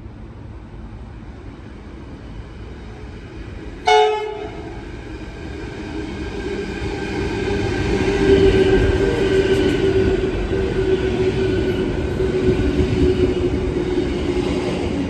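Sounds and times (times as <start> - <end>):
train rumble: 0.0 - 15.0
train horn blast: 3.8 - 4.8.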